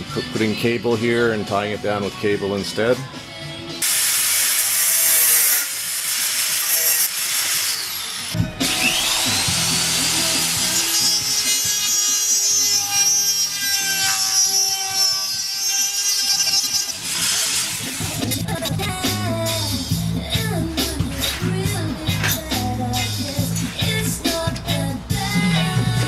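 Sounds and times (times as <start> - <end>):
music playing: 0.0 - 3.9, 8.2 - 13.7, 17.5 - 26.0
hand sawing scraping: 4.6 - 18.6.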